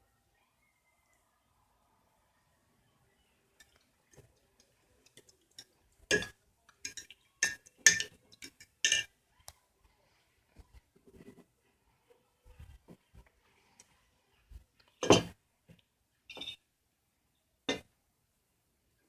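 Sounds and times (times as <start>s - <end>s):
utensil clinking against container: 5.1s - 9.1s.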